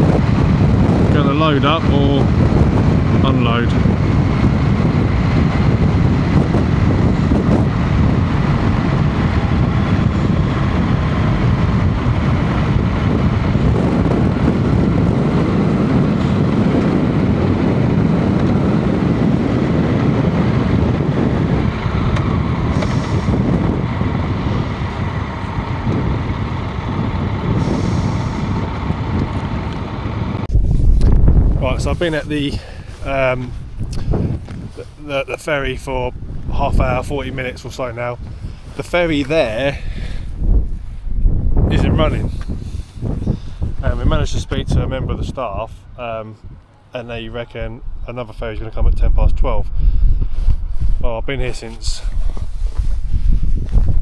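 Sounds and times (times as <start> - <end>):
diesel engine rumbling: 0.0 - 49.0
air brake hisses: 22.8 - 23.4.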